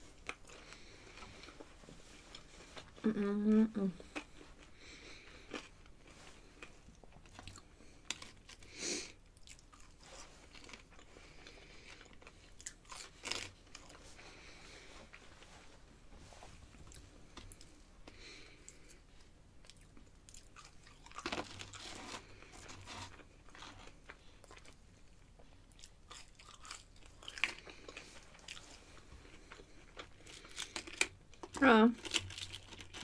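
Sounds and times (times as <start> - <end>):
crunching crispy fried food: 9.4 - 14.0, 19.7 - 33.0.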